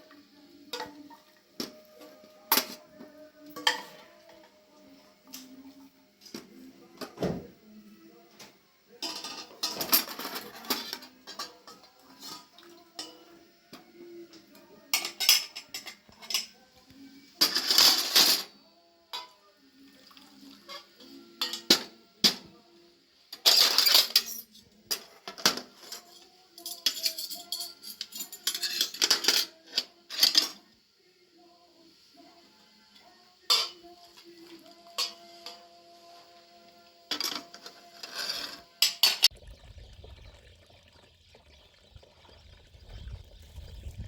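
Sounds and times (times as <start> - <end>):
pots and utensils clattering: 3.6 - 4.1, 9.0 - 13.3, 14.9 - 16.6, 17.4 - 18.5, 20.7 - 22.5, 23.3 - 30.6, 33.5 - 33.8, 34.9 - 35.6, 37.1 - 44.0.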